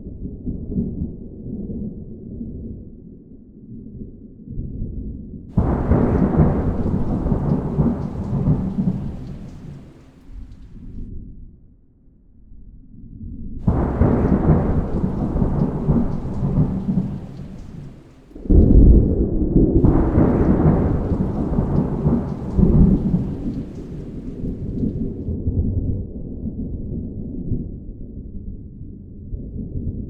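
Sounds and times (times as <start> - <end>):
thunder rumbling: 5.6 - 11.0, 13.6 - 19.2, 19.8 - 25.3.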